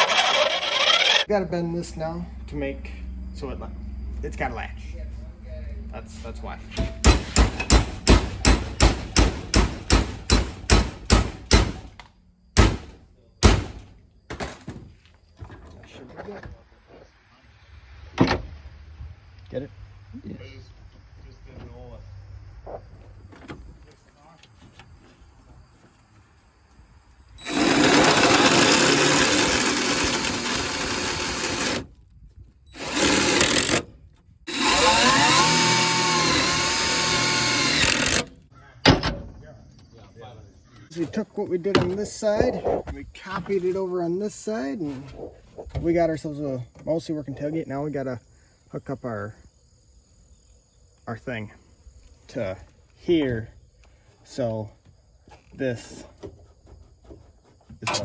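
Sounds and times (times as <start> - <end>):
power drill spinning: 0.0 - 1.3, 27.4 - 32.0, 32.7 - 33.9, 34.5 - 38.3
hammer striking metal: 6.8 - 11.9.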